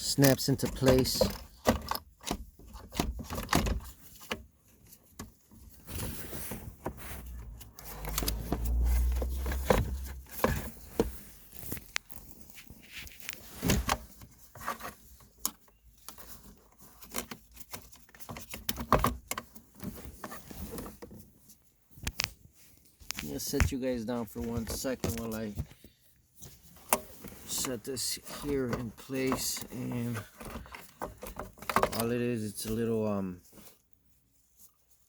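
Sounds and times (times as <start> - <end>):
clicks taps and rustles: 0.0 - 21.2, 21.9 - 32.8
low rumble: 7.3 - 10.4.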